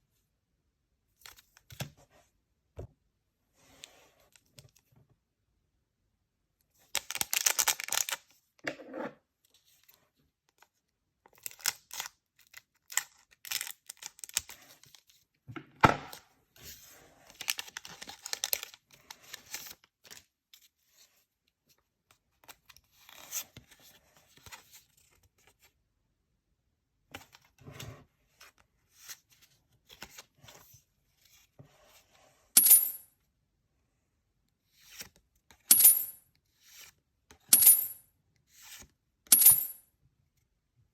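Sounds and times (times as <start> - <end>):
wrapper crinkling and rustling: 17.4 - 18.8.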